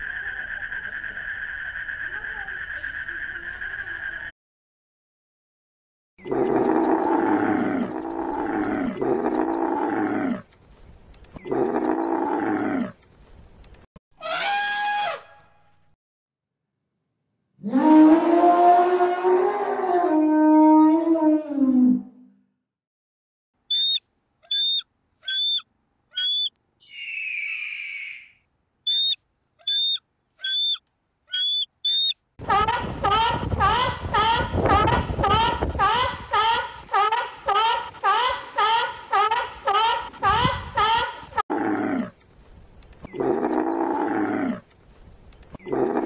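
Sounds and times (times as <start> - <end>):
bird of prey rasping screech: 23.7 - 25.6, 26.2 - 32.2.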